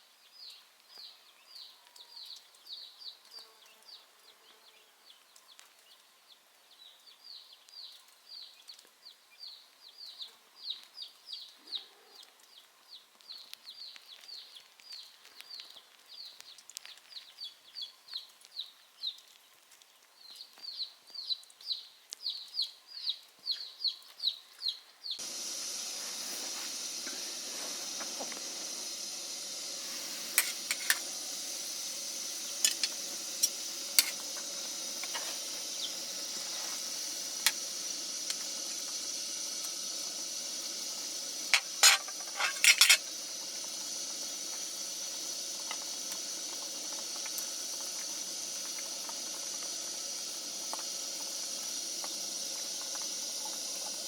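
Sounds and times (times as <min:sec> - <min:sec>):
sizzling hiss with crackles: 0:00.0 - 0:54.0
bird chirping: 0:20.2 - 0:47.6.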